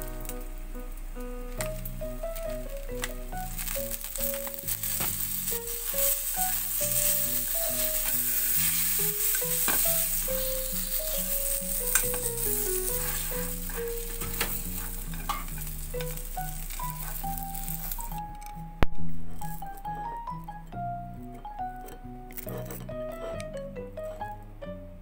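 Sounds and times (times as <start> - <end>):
mochi sizzling in a frying pan: 0.0 - 18.4
chopsticks clicking against pan: 10.8 - 18.6.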